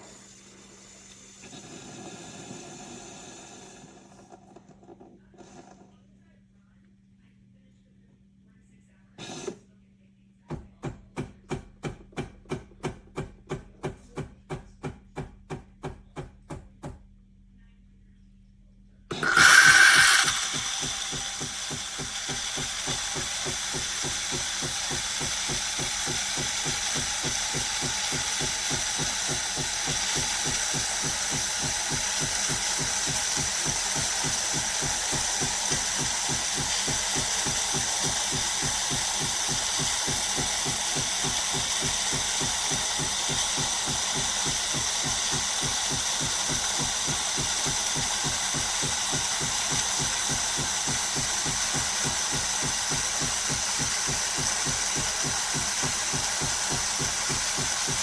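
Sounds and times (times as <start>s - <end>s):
espresso machine pump throbbing: 0.0s - 4.4s, 19.1s - 58.0s.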